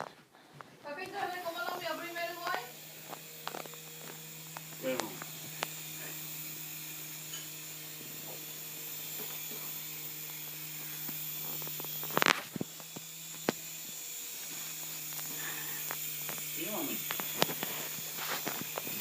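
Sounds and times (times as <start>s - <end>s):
toy helicopter motor buzzing: 0.9s - 19.0s.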